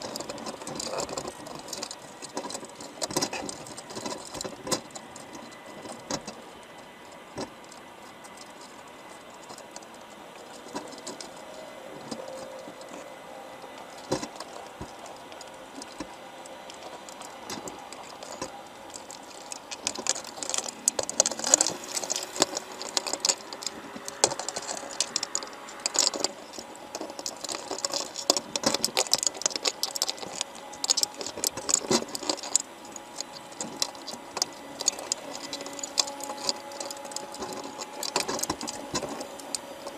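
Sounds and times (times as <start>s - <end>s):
crabs clicking underwater: 0.0s - 39.9s.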